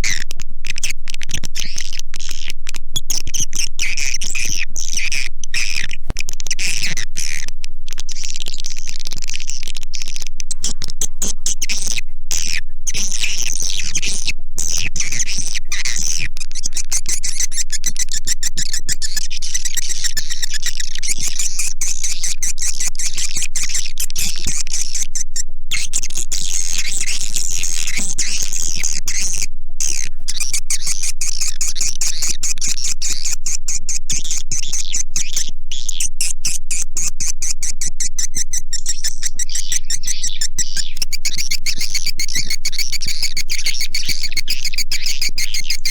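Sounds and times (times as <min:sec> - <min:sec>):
swiftlets chattering and twittering: 0:12.9 - 0:45.9.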